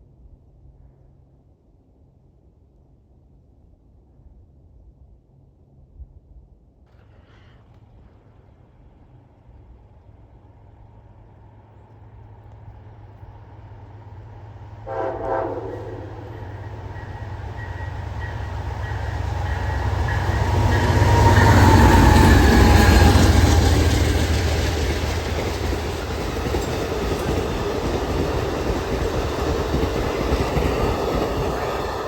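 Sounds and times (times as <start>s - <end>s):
train passing on rails: 7.8s - 32.0s.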